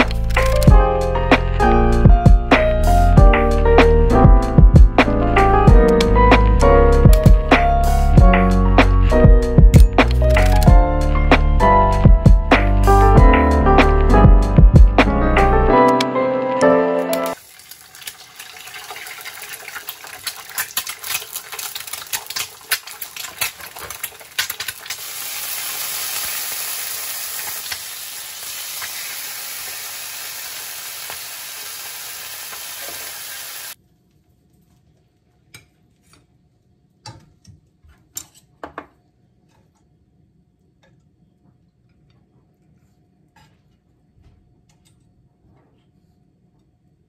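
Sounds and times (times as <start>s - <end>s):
food sizzling in a pan: 17.4s - 33.8s.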